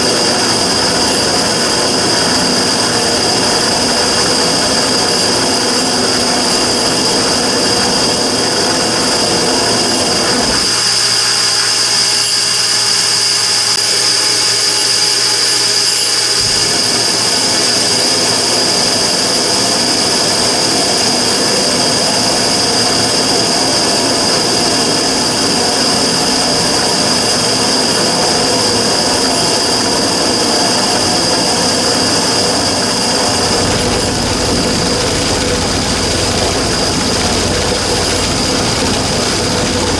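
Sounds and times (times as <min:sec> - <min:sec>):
burner rushing noise: 0:21.7 - 0:39.9
deep rumble: 0:32.5 - 0:39.9.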